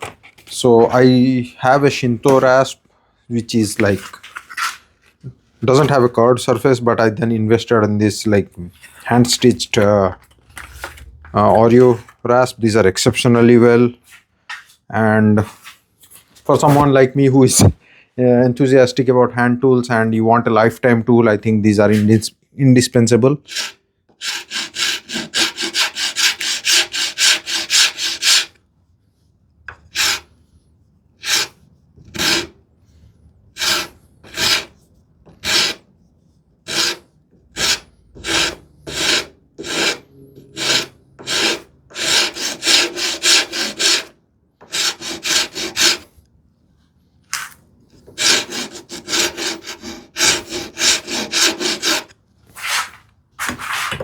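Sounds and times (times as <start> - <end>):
hand rasp filing wood: 23.5 - 28.5, 29.9 - 30.3, 31.2 - 32.6, 33.6 - 34.8, 35.4 - 35.8, 36.7 - 46.1, 48.2 - 52.1.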